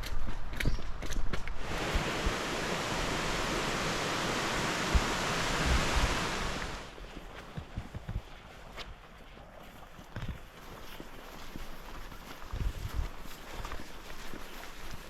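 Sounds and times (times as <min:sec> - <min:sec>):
footsteps on rough ground: 0:00.0 - 0:02.6, 0:06.9 - 0:15.0
rushing water: 0:01.5 - 0:07.0.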